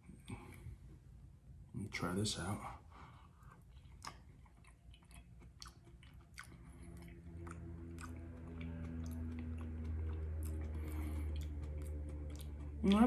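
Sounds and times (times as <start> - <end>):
low steady hum: 0.0 - 13.0
man chewing: 3.0 - 13.0.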